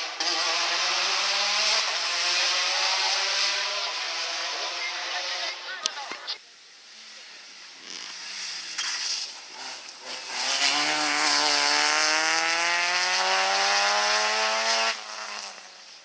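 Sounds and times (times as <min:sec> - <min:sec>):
car engine accelerating hard: 0:00.0 - 0:05.7, 0:07.7 - 0:15.8.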